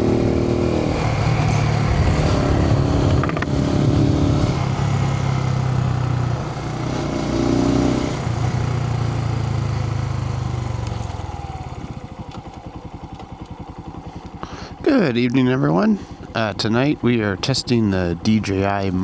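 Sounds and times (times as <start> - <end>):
wind noise: 0.0 - 5.1
motorcycle engine running: 0.0 - 19.0
road noise: 0.0 - 19.0.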